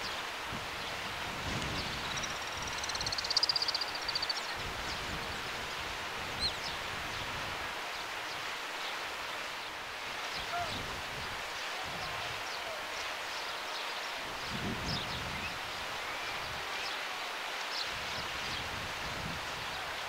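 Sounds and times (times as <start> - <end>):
outdoor background hiss: 0.0 - 20.0
small bird trilling: 2.1 - 4.4
bird chirps: 2.1 - 4.5.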